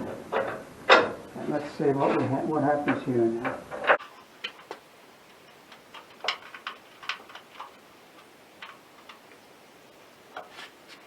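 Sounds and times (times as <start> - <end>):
metal parts clicking and knocking: 5.6 - 9.3.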